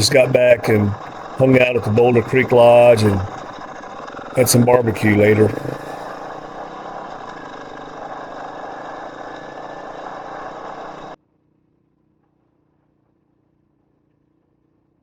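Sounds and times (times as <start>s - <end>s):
motorcycle engine running: 0.0s - 11.2s
road and wind noise: 0.0s - 11.2s.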